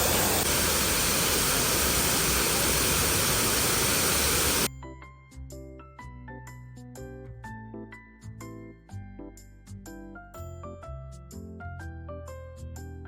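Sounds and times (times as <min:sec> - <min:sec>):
faint high whine: 0:00.0 - 0:04.7
rush of falling water: 0:00.0 - 0:04.7.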